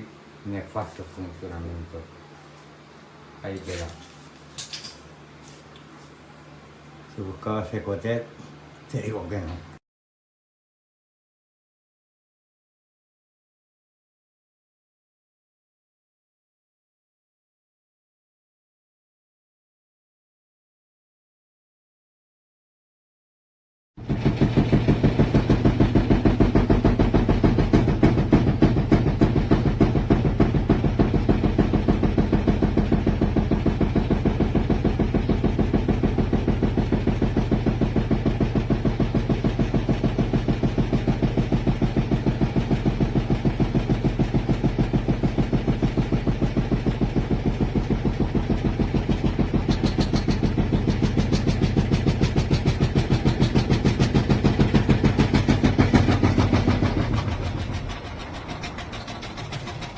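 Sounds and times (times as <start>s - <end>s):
washing machine humming: 24.0s - 59.9s.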